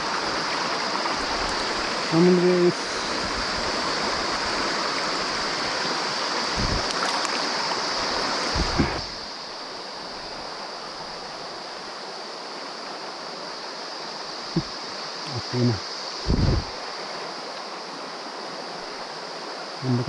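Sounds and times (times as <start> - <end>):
stream water rushing: 0.0 - 20.0
dull low bumps: 6.6 - 6.9, 8.6 - 9.1, 16.2 - 16.7.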